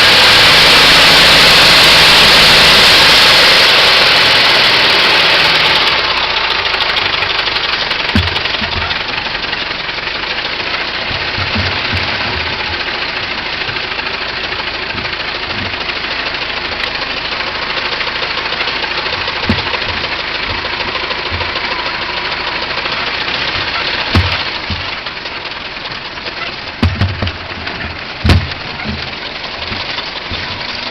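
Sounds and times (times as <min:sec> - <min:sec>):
car engine running: 0:00.0 - 0:30.9
low thumps: 0:06.8 - 0:09.8, 0:10.8 - 0:16.0, 0:19.0 - 0:22.3, 0:23.3 - 0:25.3, 0:26.6 - 0:30.9.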